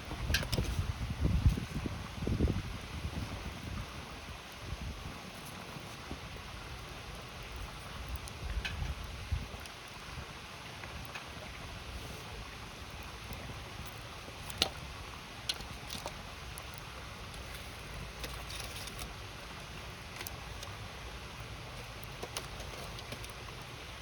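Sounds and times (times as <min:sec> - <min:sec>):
campfire crackling and popping: 0:00.0 - 0:24.0.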